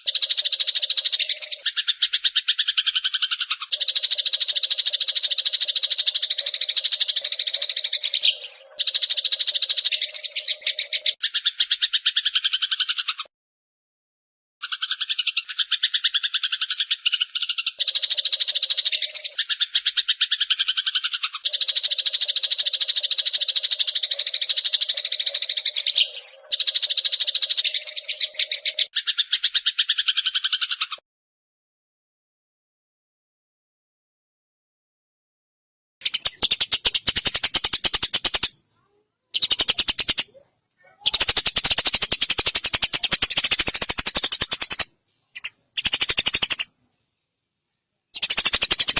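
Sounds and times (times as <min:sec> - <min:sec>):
sparrows chattering: 0:00.0 - 0:13.3, 0:14.6 - 0:31.0, 0:36.0 - 0:46.7, 0:48.1 - 0:48.9
bird whistle: 0:36.0 - 0:38.5, 0:39.4 - 0:40.2, 0:41.0 - 0:46.7, 0:48.2 - 0:48.9.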